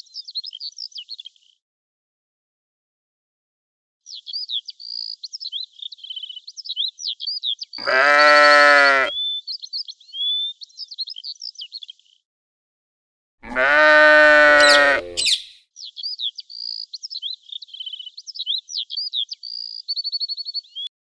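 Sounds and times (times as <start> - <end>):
birds chirping: 4.1 - 12.2, 13.4 - 20.9
sheep bleating: 7.8 - 9.2, 13.4 - 15.4.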